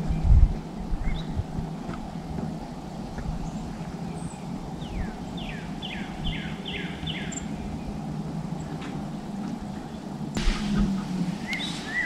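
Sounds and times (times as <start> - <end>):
steady low rumble: 0.0 - 12.0
songbird whistling: 3.4 - 7.6, 11.4 - 12.0.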